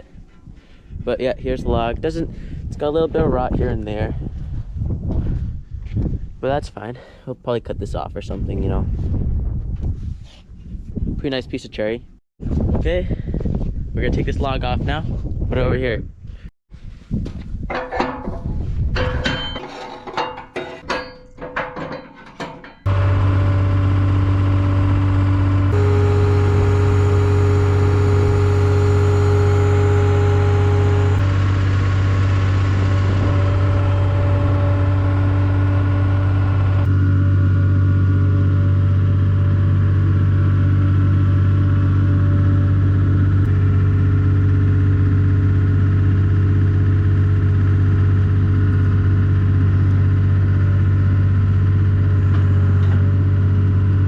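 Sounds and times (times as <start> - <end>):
skid steer engine running: 22.9 - 54.0.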